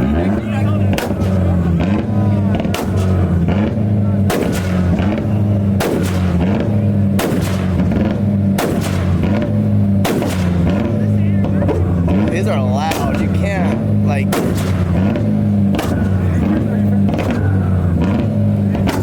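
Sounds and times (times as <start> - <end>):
car engine at high revs: 0.0 - 19.0
loud exhaust bangs: 0.0 - 19.0.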